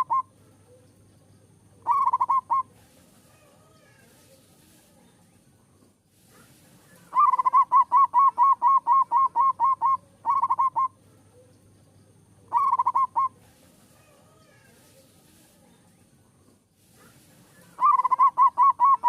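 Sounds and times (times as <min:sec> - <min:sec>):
dove cooing: 0:00.0 - 0:00.8, 0:01.8 - 0:03.5, 0:06.9 - 0:11.5, 0:12.5 - 0:14.4, 0:17.6 - 0:19.0.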